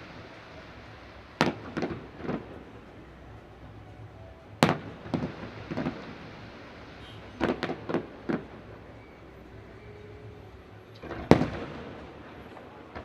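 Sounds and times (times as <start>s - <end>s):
fireworks bursting with booms: 0.0s - 3.0s, 4.6s - 9.0s, 10.9s - 13.0s.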